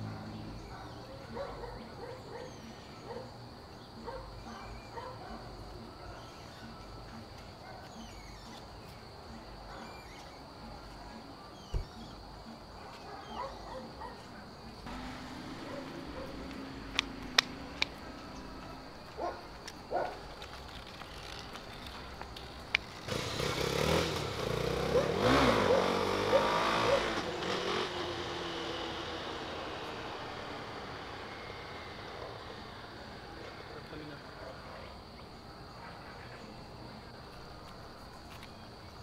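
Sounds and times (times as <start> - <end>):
street ambience: 0.0 - 39.0
motor vehicle driving past: 14.8 - 19.4, 22.9 - 35.2.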